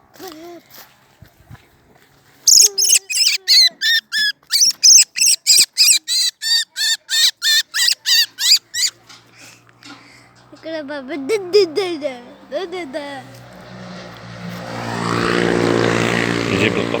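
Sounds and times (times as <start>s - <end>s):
bird harsh calls: 2.5s - 9.0s.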